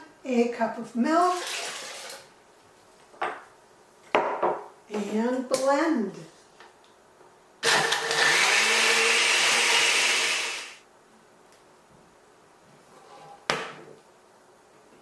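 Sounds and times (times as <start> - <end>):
countertop blender running: 1.3 - 2.3, 7.6 - 10.8.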